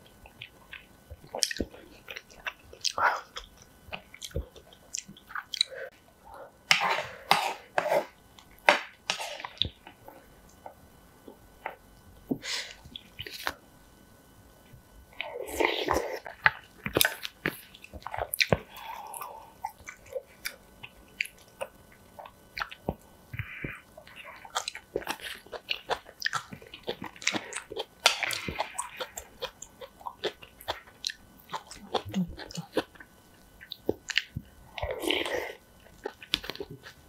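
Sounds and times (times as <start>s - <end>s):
person chewing with wet smacks: 0.2s - 5.7s, 15.2s - 37.0s.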